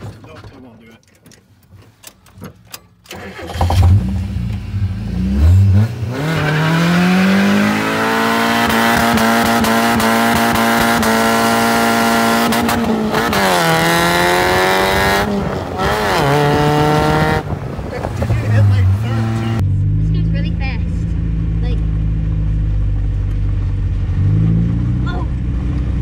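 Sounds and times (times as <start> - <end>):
engine revving at high revs: 3.5 - 17.5, 18.4 - 20.5.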